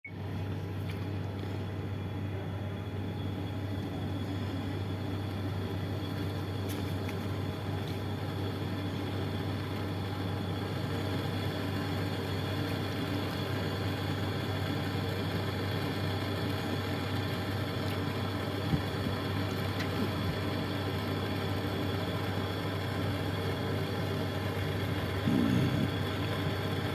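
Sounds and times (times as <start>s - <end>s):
torch flame hissing: 3.1s - 26.9s
low hum: 15.9s - 26.9s.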